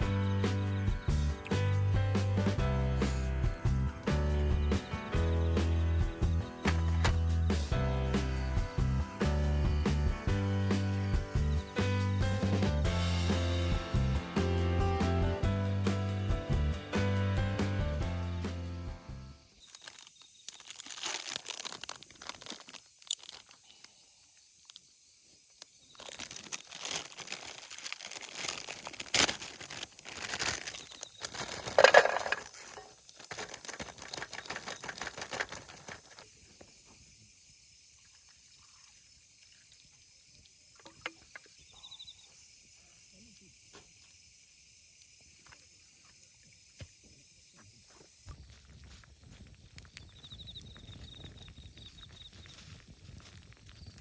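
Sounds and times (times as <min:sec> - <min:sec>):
rustling and crinkling: 0:19.5 - 0:23.9, 0:24.6 - 0:36.7, 0:47.8 - 0:54.0.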